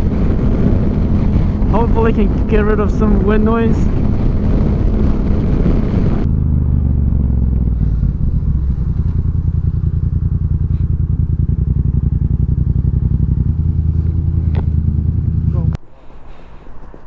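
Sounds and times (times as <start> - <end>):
wind rushing over microphone: 0.0 - 15.8
motorcycle engine idling: 6.2 - 15.8.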